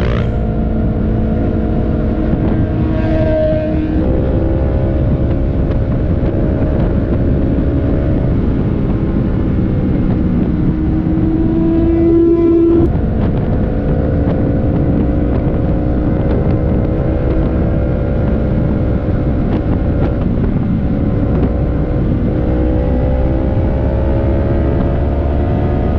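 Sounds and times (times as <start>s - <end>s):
motorcycle engine at speed: 0.0s - 25.9s
wind rushing past microphone: 0.0s - 25.9s.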